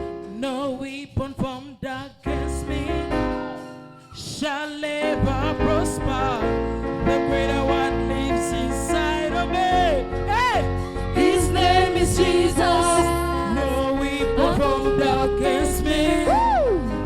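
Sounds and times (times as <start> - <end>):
bass: 2.2 - 3.6, 5.1 - 17.0
person singing with vibrato: 4.2 - 17.0
keyboard chords: 5.0 - 17.0.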